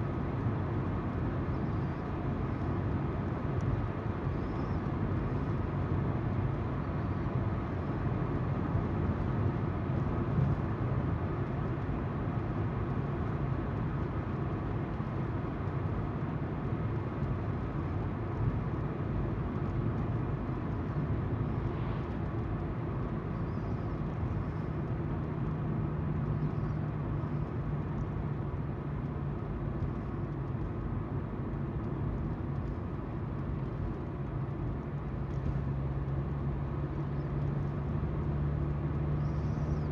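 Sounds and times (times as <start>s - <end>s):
car engine hum: 12.0s - 39.9s.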